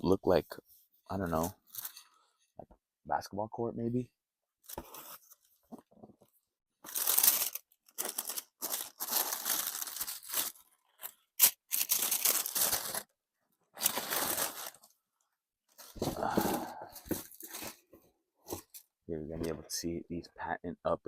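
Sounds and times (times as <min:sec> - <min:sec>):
paper rustling and crinkling: 0:06.8 - 0:13.1, 0:13.8 - 0:14.9, 0:15.7 - 0:17.9.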